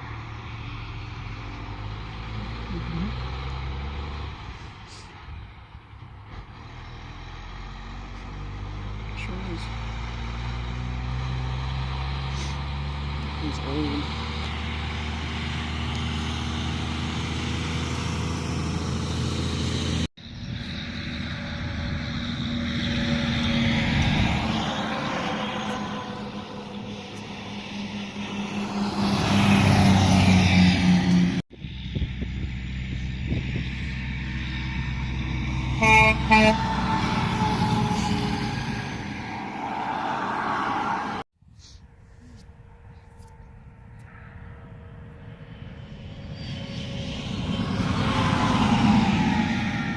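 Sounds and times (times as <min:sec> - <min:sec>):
heavy trucks passing: 0:00.0 - 0:41.9, 0:42.5 - 0:49.9
truck horn blasts: 0:35.7 - 0:38.3.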